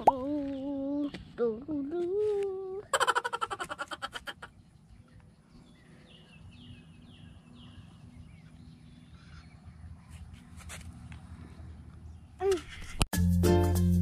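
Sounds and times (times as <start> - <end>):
bird singing faintly: 4.3 - 12.6.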